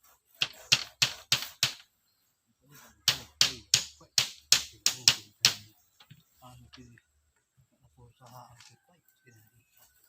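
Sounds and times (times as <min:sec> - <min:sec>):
hand tool striking wood: 0:00.4 - 0:01.8, 0:03.0 - 0:05.7.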